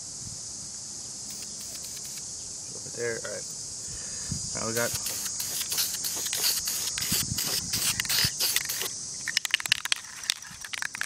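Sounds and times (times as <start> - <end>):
aerosol spray can hissing: 1.3 - 2.3, 4.6 - 11.0.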